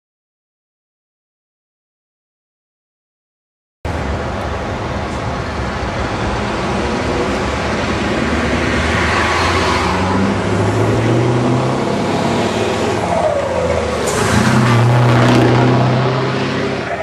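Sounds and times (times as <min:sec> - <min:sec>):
truck engine with open exhaust: 0:03.9 - 0:17.0.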